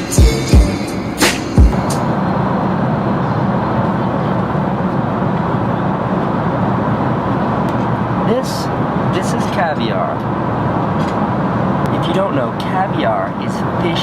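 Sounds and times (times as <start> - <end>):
music with heavy bass beat: 0.0 - 2.1
jet airliner cabin noise: 0.0 - 14.0.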